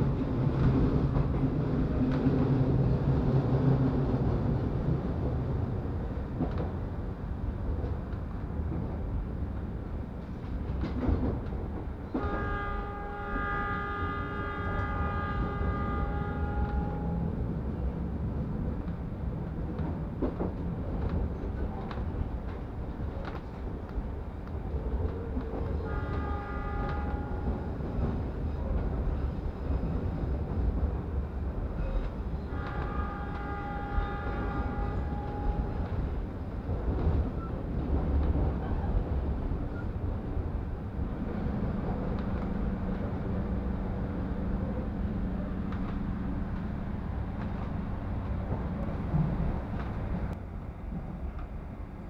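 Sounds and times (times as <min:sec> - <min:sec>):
train rumble: 0:00.0 - 0:52.0
train horn blasts: 0:12.2 - 0:17.3, 0:25.8 - 0:27.8, 0:32.4 - 0:35.9.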